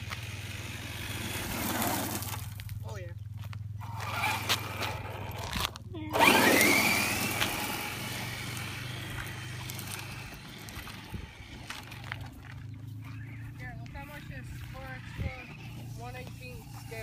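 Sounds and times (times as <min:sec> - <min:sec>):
electric motor whining: 0:00.0 - 0:02.7, 0:03.8 - 0:17.0
tyres crunching on gravel: 0:00.0 - 0:17.0.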